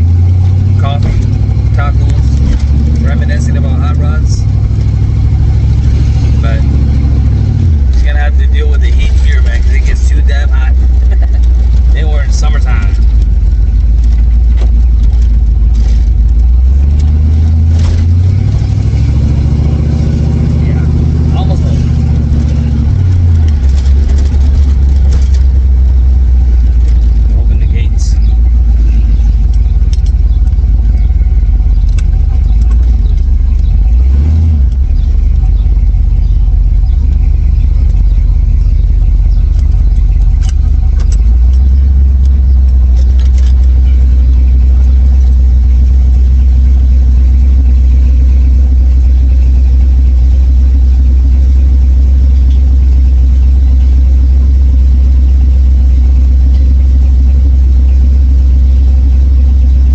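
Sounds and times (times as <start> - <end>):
car engine rumbling: 0.0 - 59.9
faint clicks: 36.9 - 44.1.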